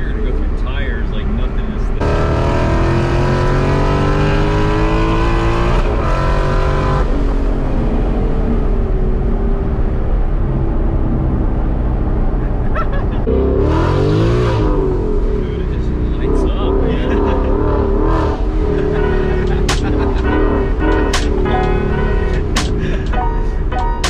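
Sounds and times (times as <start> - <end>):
supercharged car engine accelerating: 0.0 - 24.0.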